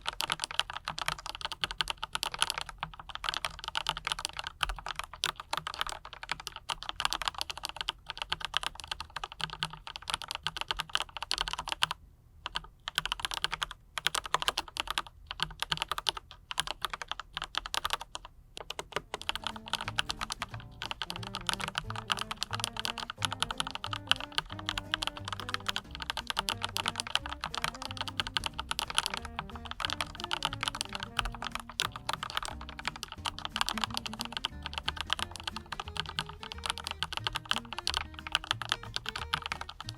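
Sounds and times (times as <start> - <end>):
mechanical keyboard typing: 0.0 - 39.9
soft background music: 19.1 - 39.9.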